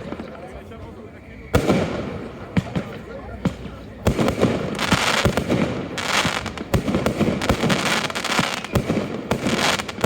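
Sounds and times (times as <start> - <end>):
fireworks crackling and hissing: 0.0 - 10.0
firework shells bursting: 3.5 - 10.0.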